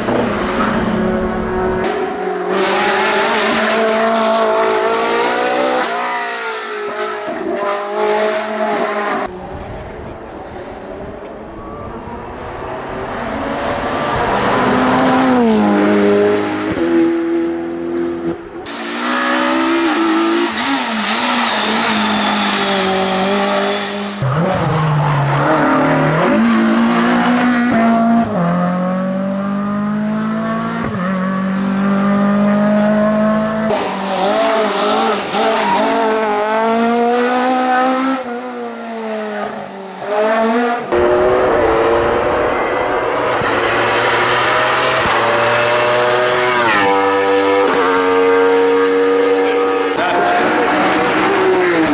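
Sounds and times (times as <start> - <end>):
race car engine at full throttle: 0.0 - 51.9.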